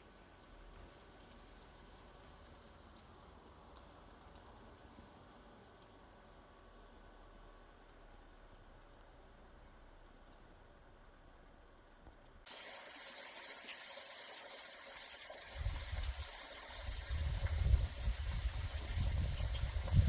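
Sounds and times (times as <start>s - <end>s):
creek water rushing: 12.5s - 20.0s.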